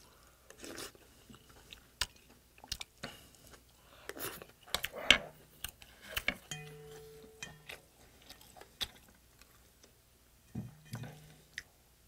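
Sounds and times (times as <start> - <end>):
person chewing food: 0.0 - 10.0
wet mouth clicks and smacks: 2.0 - 3.0.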